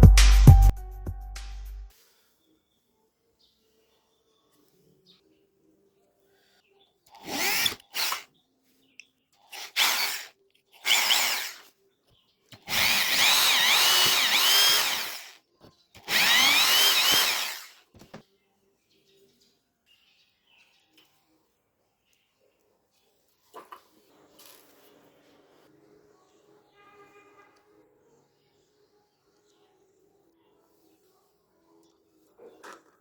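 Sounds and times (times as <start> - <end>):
electric drill motor whine: 7.2 - 8.2, 9.5 - 11.7, 12.6 - 15.4, 16.0 - 18.2.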